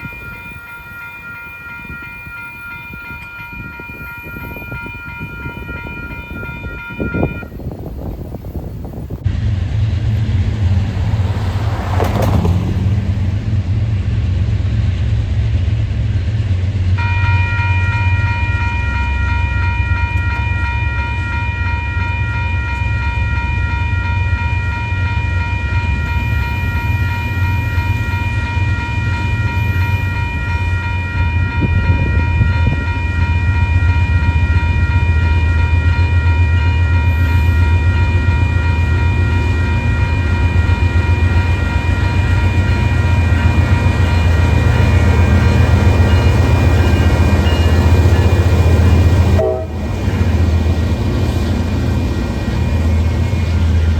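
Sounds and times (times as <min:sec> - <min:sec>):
high ringing tone: 0:00.0 - 0:07.6, 0:17.0 - 0:50.4
freight train rumbling: 0:00.0 - 0:53.9.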